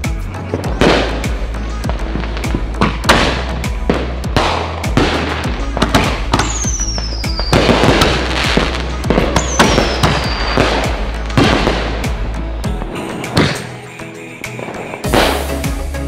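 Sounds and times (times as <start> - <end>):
fireworks bangs and crackles: 0.0 - 15.9
firework whistles falling in pitch: 6.4 - 7.9, 9.4 - 10.7.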